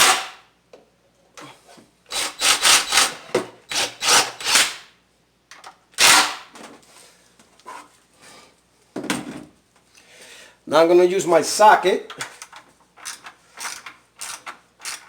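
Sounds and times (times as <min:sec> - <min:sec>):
impact gun bursts: 0:00.0 - 0:00.4.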